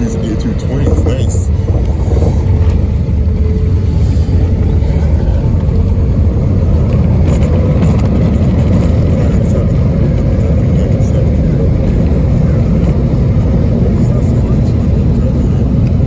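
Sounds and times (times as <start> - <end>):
aircraft engines and wheels rumbling: 0.0 - 16.0.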